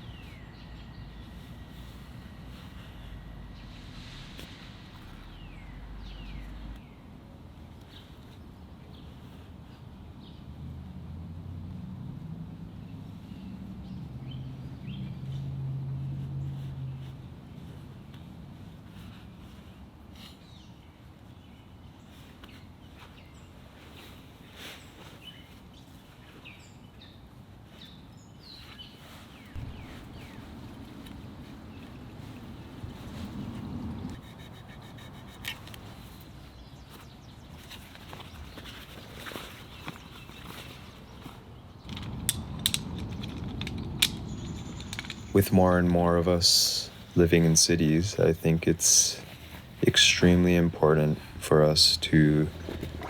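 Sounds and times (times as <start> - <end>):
birds chirping: 0.0 - 7.1, 24.8 - 53.0
steady low rumble: 0.0 - 7.6, 29.5 - 34.3, 41.8 - 53.0
falling whistled bird calls: 28.4 - 33.2.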